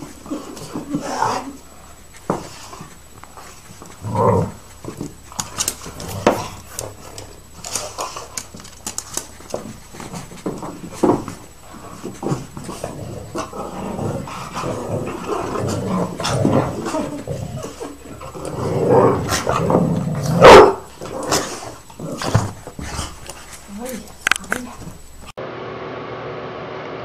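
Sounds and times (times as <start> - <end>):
dogs growling and barking: 0.0 - 25.3
loud sharp dog bark: 20.4 - 20.8.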